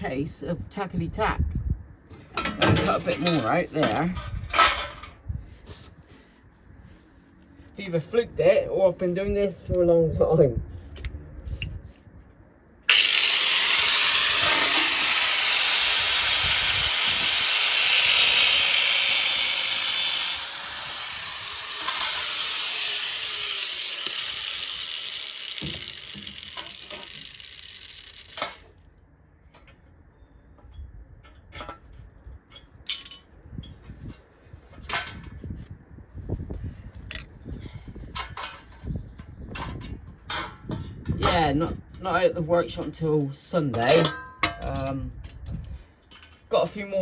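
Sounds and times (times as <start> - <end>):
angle grinder cutting steel: 12.9 - 28.7.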